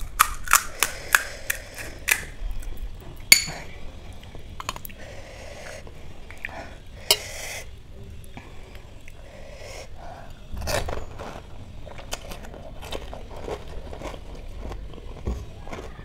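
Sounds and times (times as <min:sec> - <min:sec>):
sharp crack: 0:00.0 - 0:02.3
crunching and wet chewing: 0:10.2 - 0:16.0.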